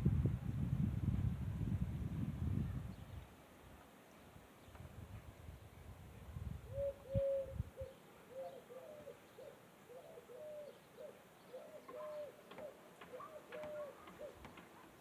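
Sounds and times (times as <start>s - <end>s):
pigeons cooing: 6.7s - 14.9s.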